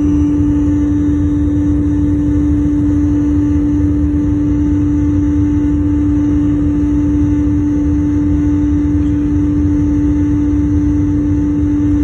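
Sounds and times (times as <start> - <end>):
airliner cabin engine drone: 0.0 - 12.0.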